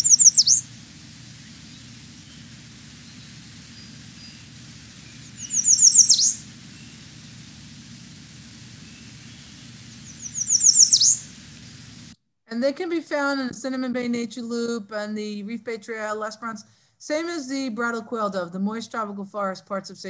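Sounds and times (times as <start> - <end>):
bird call high thin notes: 0.0 - 7.5, 8.6 - 11.4
steady low hum: 0.0 - 12.2.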